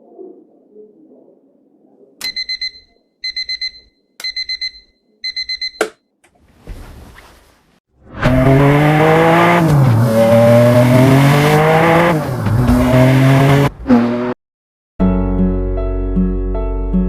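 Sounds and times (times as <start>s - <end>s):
electronic alarm beeping: 2.2s - 6.0s.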